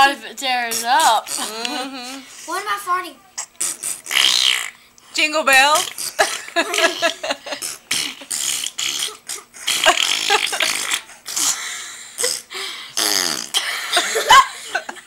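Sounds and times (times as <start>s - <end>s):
children making fart noises: 0.6s - 2.3s, 3.4s - 4.8s, 5.8s - 14.3s.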